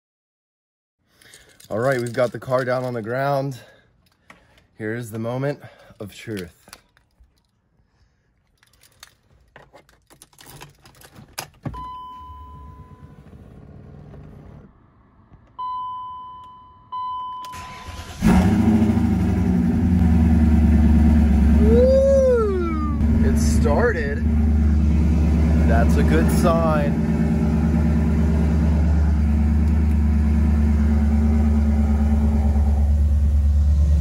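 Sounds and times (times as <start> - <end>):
keys rattling: 1.1 - 3.2, 5.8 - 7.7, 8.3 - 11.8
car engine starting and idling: 10.7 - 34.0
short beeps: 11.7 - 13.2, 15.6 - 17.6.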